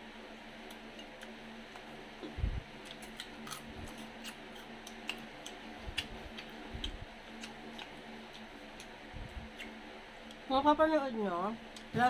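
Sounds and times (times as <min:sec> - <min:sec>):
crunchy chewing: 0:00.6 - 0:10.5
soft low thumps: 0:02.2 - 0:02.7.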